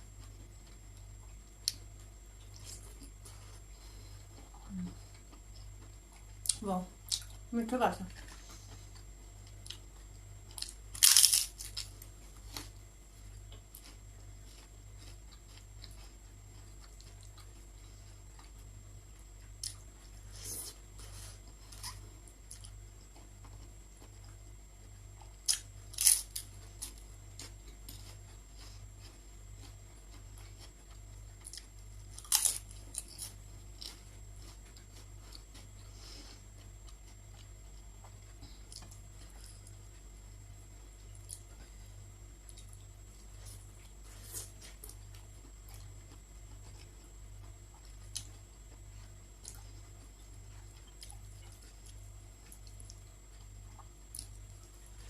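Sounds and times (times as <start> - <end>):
soft chewing clicks: 0.0 - 55.0
loud crunchy bites: 10.6 - 11.9, 25.5 - 26.5.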